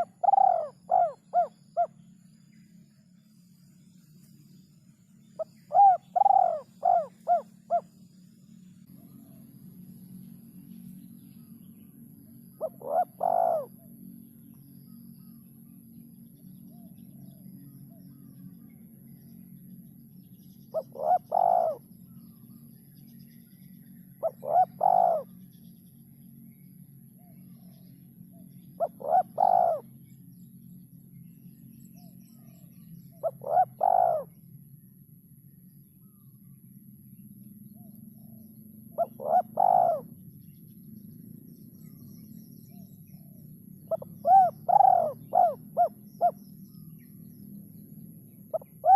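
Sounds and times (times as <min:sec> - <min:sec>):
dove cooing: 0:00.0 - 0:02.0, 0:05.4 - 0:07.9, 0:12.6 - 0:13.9, 0:20.7 - 0:21.9, 0:24.2 - 0:25.3, 0:28.8 - 0:29.9, 0:33.2 - 0:34.3, 0:39.0 - 0:40.2, 0:43.9 - 0:46.4, 0:48.5 - 0:48.9
steady low hum: 0:00.0 - 0:48.9.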